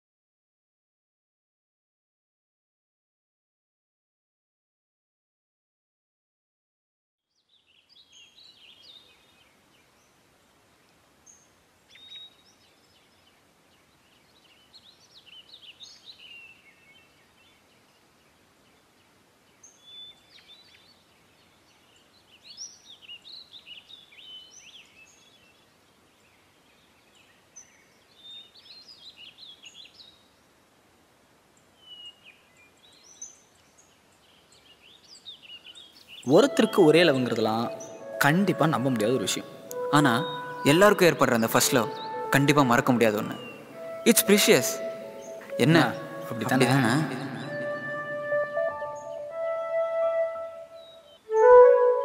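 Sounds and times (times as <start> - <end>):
faint outdoor hiss: 7.2 - 52.0
birds chirping and calling: 35.6 - 49.4.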